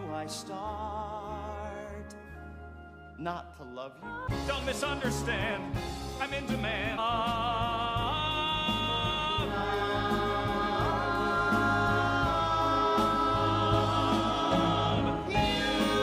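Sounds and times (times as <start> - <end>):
musical accompaniment: 0.0 - 16.0.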